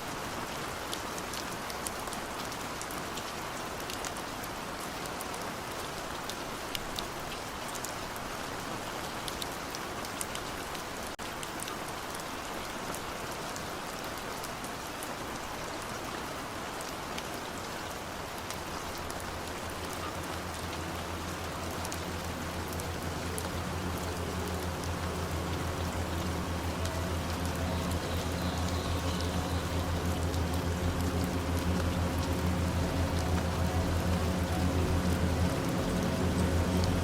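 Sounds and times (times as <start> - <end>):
steady rain falling: 0.0 - 37.0
low rumbling hum: 18.2 - 37.0.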